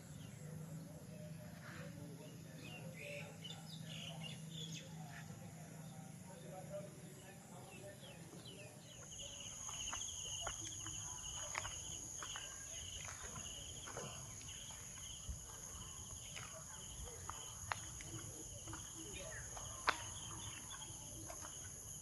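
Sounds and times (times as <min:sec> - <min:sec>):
insects pulsing trill: 0:08.9 - 0:22.0.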